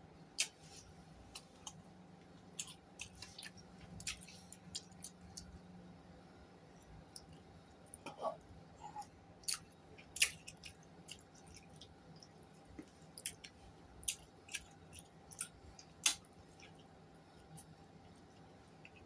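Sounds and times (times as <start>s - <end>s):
chewing with mouth clicks: 2.5s - 5.6s, 9.4s - 19.0s.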